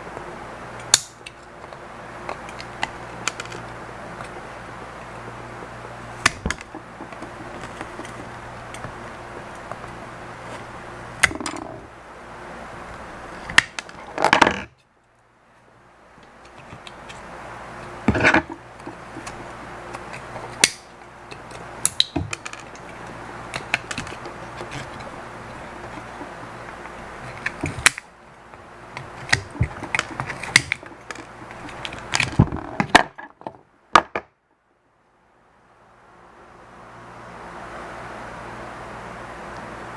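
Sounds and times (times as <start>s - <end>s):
low hum and hiss: 0.0s - 39.9s
small parts and tools clicking: 0.8s - 4.4s, 17.8s - 28.1s.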